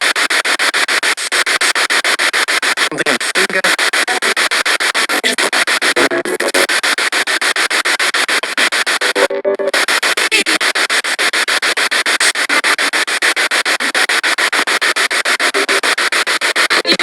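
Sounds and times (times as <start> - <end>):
radio static pulsing rapidly: 0.0 - 17.0
broadcast tone fragment: 5.2 - 6.7, 9.0 - 10.6.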